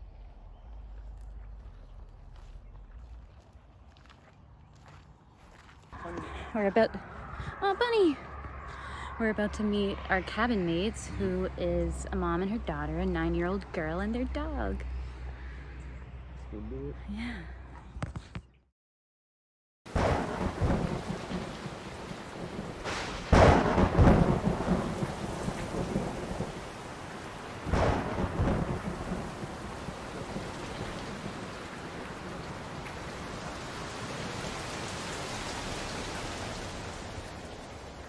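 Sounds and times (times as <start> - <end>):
steady rain: 19.9 - 38.0
thunder crack and rumble: 19.9 - 38.0.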